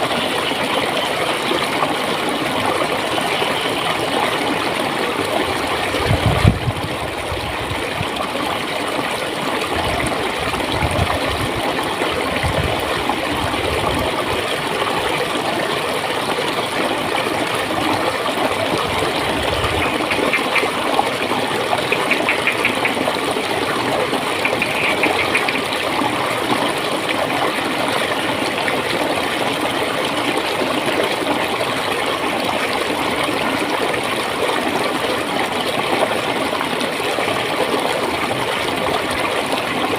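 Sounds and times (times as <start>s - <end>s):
water flowing and gurgling: 0.0s - 39.9s.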